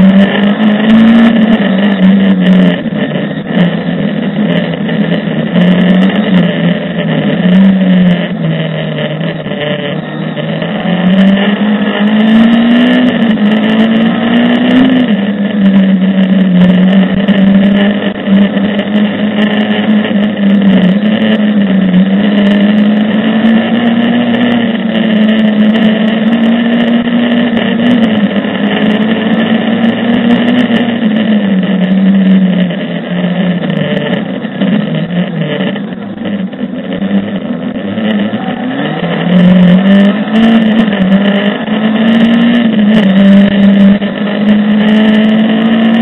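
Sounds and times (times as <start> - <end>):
rally car engine running hard: 0.0 - 46.0.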